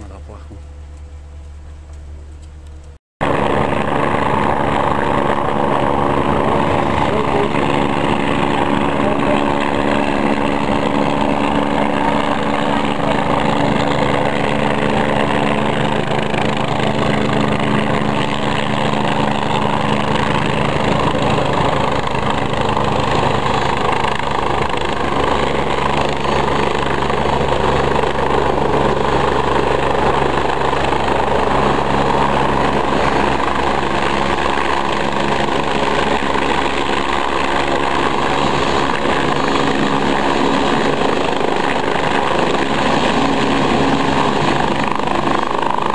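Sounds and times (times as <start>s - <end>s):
helicopter engine and rotor drone: 0.0s - 45.9s.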